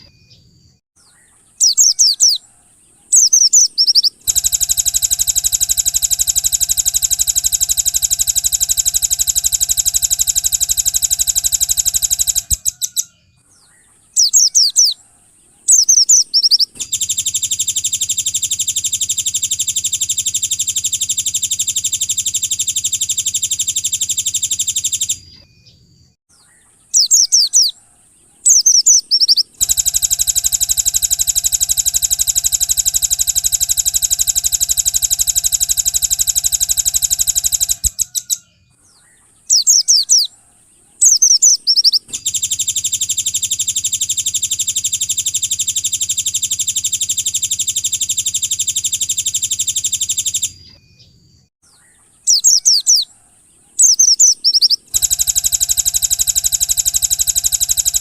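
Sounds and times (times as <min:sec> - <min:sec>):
high bird chirps: 0:00.0 - 0:58.0
buzzing bird trills: 0:01.3 - 0:13.1, 0:27.0 - 0:38.4, 0:52.3 - 0:58.0.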